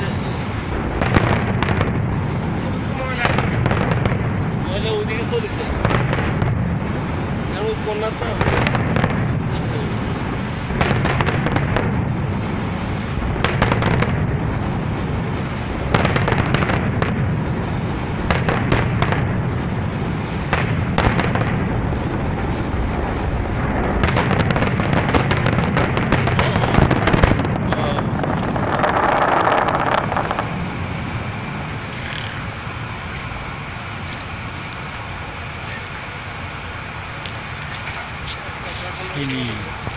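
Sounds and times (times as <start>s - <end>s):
continuous low rumble: 0.0s - 39.9s
fireworks cracks and bangs: 0.0s - 39.9s.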